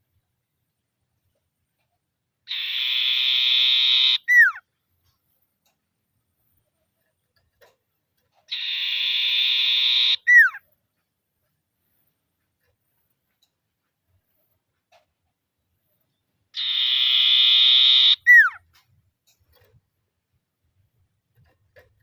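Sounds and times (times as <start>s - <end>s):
bird rattling trill call: 8.5s - 10.6s.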